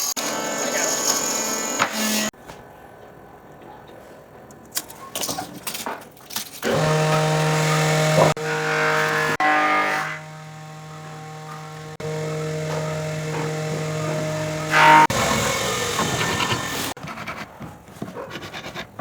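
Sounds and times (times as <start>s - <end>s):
electric power tool motor running: 0.0s - 2.3s, 6.6s - 17.0s.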